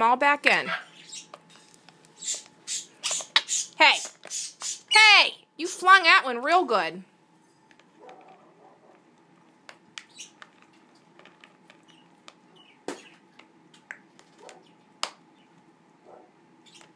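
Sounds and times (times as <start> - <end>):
parrot rummaging in nuts: 7.4 - 13.3.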